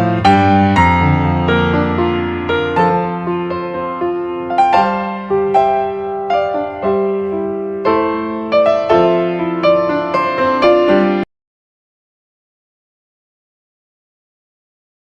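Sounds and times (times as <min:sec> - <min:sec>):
piano melody: 0:00.0 - 0:11.3.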